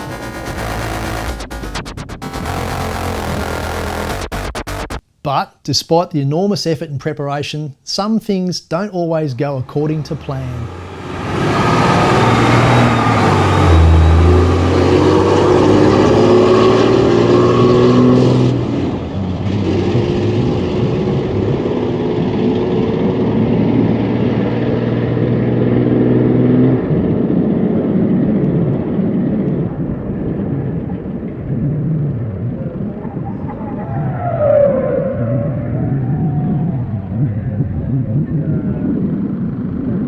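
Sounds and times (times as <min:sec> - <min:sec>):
dull engine rumble: 0:00.0 - 0:05.0, 0:09.5 - 0:40.0
vehicle engine running: 0:00.0 - 0:05.0, 0:09.6 - 0:15.0
second engine note: 0:09.6 - 0:16.2.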